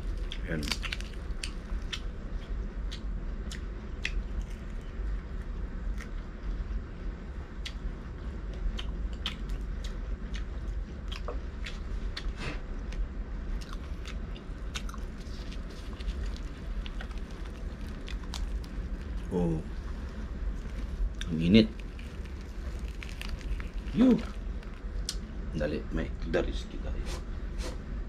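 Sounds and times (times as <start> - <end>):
person crunching food: 0.0 - 2.1, 13.6 - 25.3
low hum: 0.0 - 28.0.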